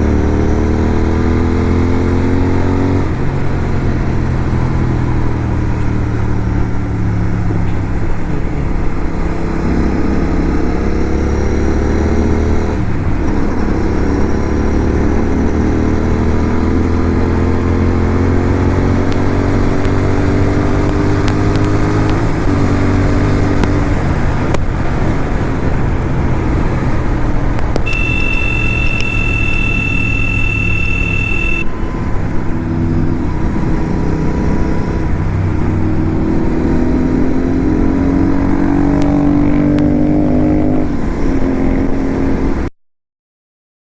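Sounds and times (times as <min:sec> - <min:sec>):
motorcycle engine accelerating: 0:00.0 - 0:42.7
high steady beep: 0:27.8 - 0:31.7.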